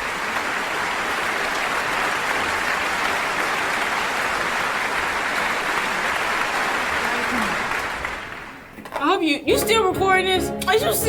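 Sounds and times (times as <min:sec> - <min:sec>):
people clapping: 0:00.0 - 0:08.8.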